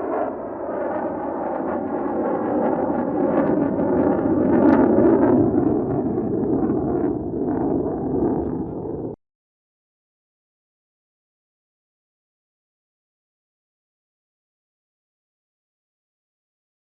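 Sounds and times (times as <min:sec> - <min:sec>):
fighter jet engine running: 0:00.0 - 0:09.2.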